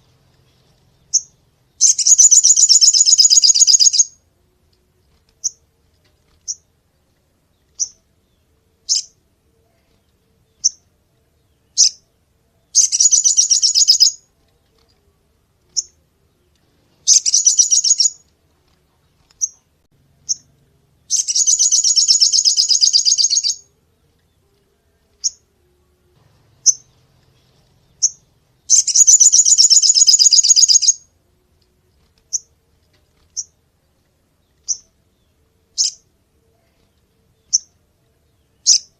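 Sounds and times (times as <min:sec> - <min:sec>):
songbird chirping: 0:00.0 - 0:38.9
bird rattling trills: 0:01.1 - 0:04.2, 0:12.8 - 0:14.2, 0:17.0 - 0:18.2, 0:21.1 - 0:23.6, 0:28.0 - 0:31.0.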